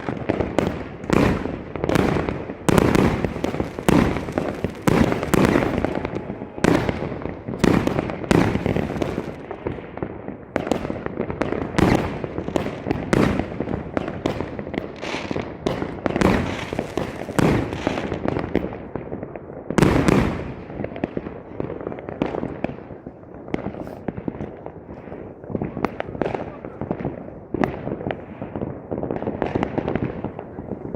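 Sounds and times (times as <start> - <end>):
fireworks bursting: 0.0 - 19.2.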